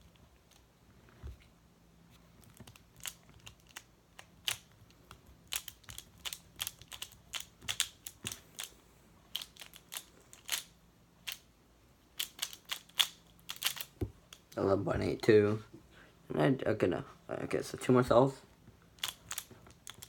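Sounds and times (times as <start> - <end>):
plastic puzzle clicking: 2.4 - 8.7, 9.3 - 11.4, 12.2 - 14.5, 19.0 - 20.0.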